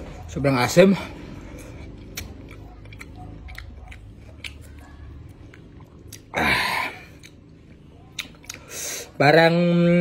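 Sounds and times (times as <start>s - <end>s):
chewing fruit: 1.1s - 9.2s
wet mouth clicks: 1.9s - 4.8s, 8.1s - 8.8s.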